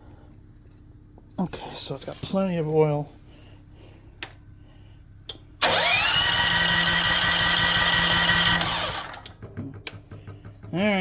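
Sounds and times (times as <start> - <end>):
small electric motor whining: 5.6 - 9.2.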